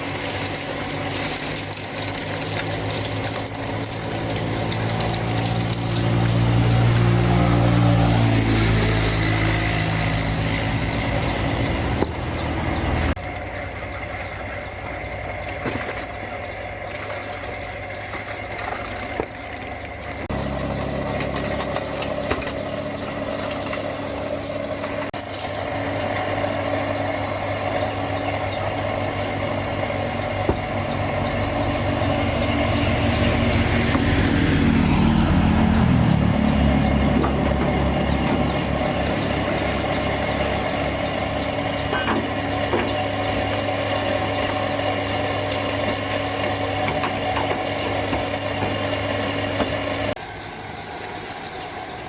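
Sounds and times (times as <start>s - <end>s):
machine motor humming: 19.8s - 50.2s.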